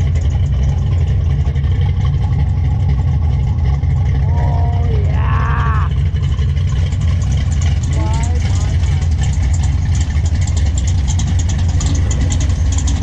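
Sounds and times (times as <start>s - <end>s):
car engine idling: 0.0s - 13.0s
person's voice: 4.2s - 6.0s, 7.9s - 8.8s.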